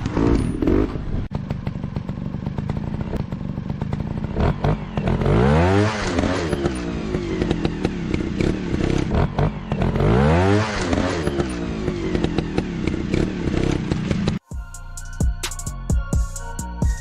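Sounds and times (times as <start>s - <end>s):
motorcycle engine revving: 0.0s - 14.4s.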